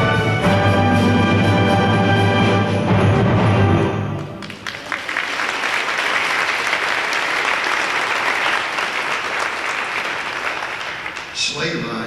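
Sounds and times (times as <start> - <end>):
audience applauding: 4.2 - 11.7.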